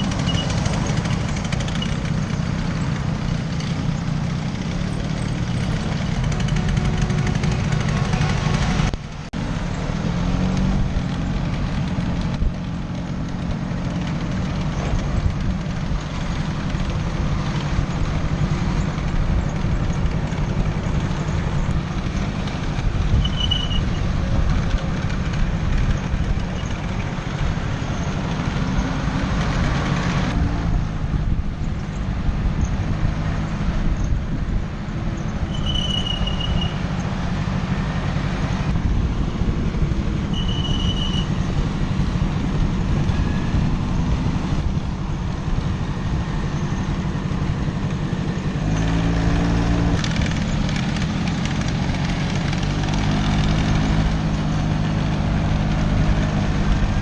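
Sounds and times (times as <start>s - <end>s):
scooter engine running: 0.0s - 28.9s, 38.4s - 57.0s
wind rumble on microphone: 13.5s - 57.0s.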